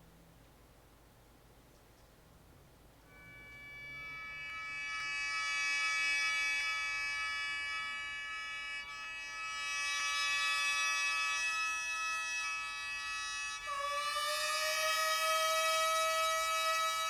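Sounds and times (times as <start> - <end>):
mouth organ sustained chord: 3.1 - 13.7.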